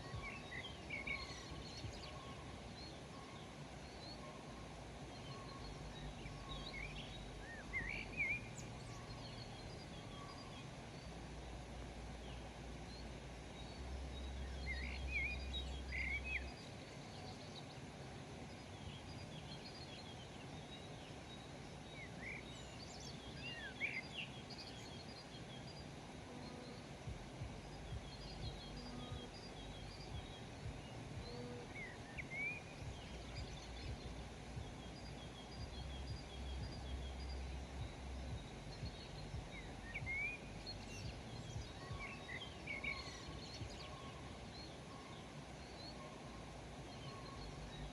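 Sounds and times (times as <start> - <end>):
small birds chirping: 0.0 - 47.9
steady outdoor hiss: 0.0 - 47.9
low rumble: 27.0 - 32.1, 32.7 - 41.8.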